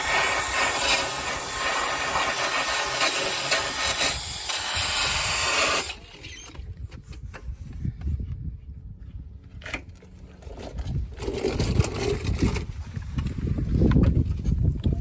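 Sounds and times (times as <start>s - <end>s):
power tool abrasive hiss: 0.0s - 6.0s.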